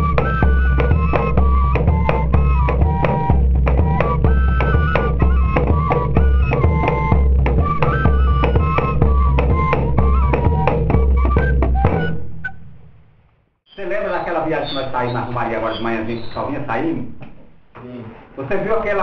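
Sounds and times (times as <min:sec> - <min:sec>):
fife melody: 0:00.0 - 0:12.7
drums: 0:00.0 - 0:13.2.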